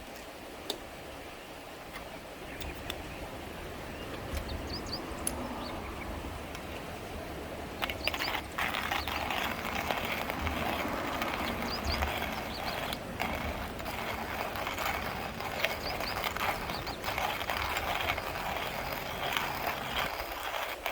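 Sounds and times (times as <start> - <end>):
coffee mill grinding beans: 7.8 - 20.9.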